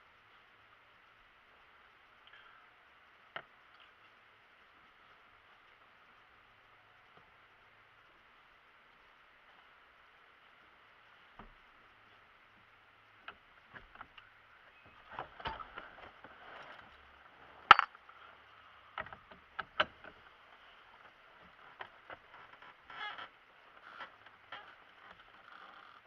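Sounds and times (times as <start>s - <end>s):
clicks and knocks: 17.7s - 18.0s.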